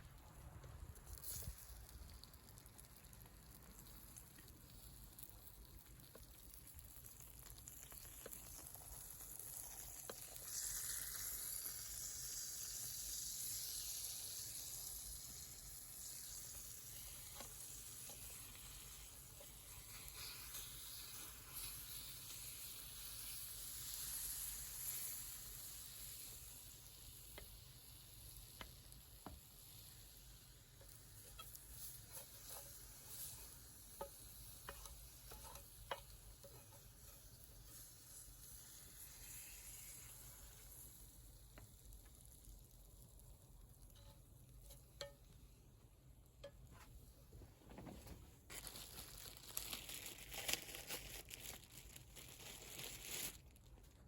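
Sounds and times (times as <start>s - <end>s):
faint crackles: 0.0s - 12.7s, 46.4s - 54.0s
food sizzling in a frying pan: 0.9s - 45.5s.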